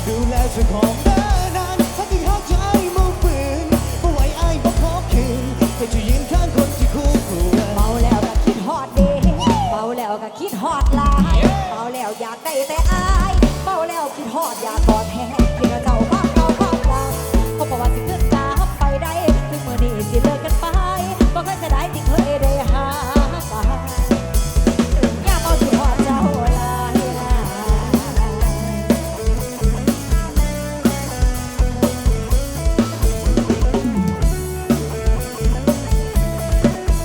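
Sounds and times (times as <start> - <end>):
heavy bass drum beat: 0.0 - 10.0, 10.8 - 37.0
band playing through loudspeakers: 0.0 - 37.0.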